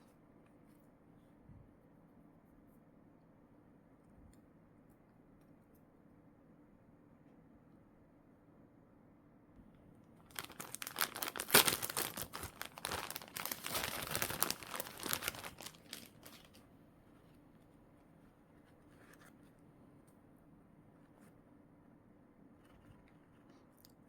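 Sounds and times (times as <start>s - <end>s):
plastic packaging crinkling and tearing: 10.3s - 16.6s.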